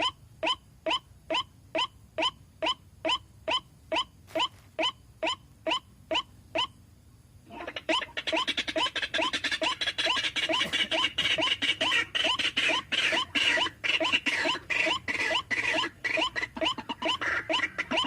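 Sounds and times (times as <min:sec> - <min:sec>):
chorus of overlapping bird calls: 0:07.5 - 0:18.0
waterhen calling: 0:07.5 - 0:18.0.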